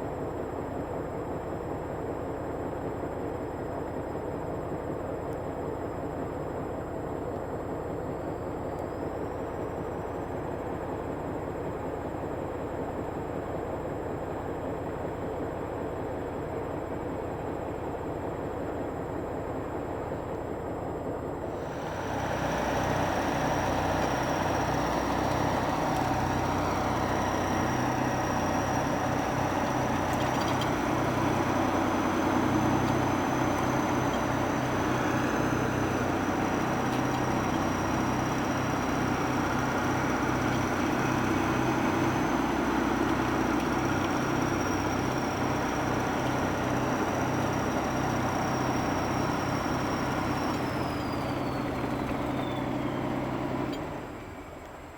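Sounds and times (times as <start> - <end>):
diesel tractor engine running: 21.4 - 54.9.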